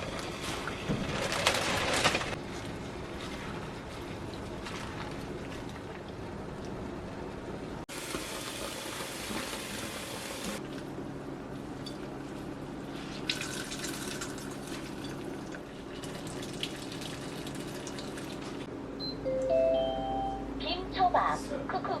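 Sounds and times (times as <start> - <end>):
tap water running into sink: 7.9 - 10.6.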